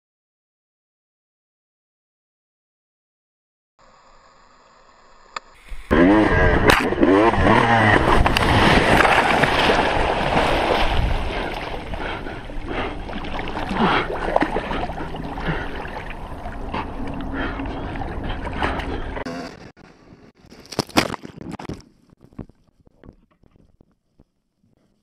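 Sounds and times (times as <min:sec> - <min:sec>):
dirt bike engine: 0:03.8 - 0:13.0, 0:14.8 - 0:20.6
heavy water splashing: 0:08.0 - 0:19.3.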